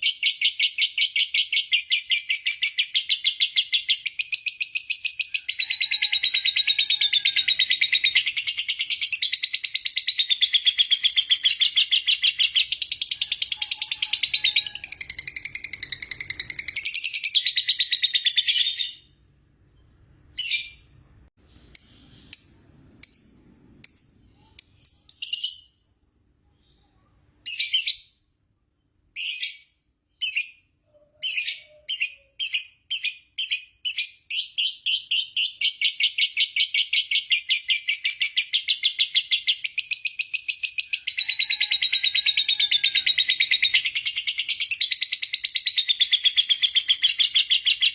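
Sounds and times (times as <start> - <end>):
bird high-pitched chattering trill: 0.0 - 18.9, 35.0 - 47.9.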